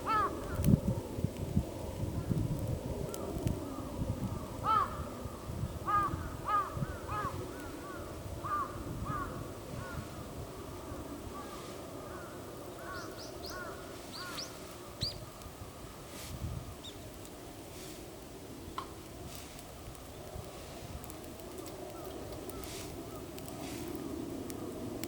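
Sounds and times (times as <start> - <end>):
crow cawing: 0.0 - 0.6, 4.6 - 5.1, 5.9 - 10.1, 11.3 - 15.0.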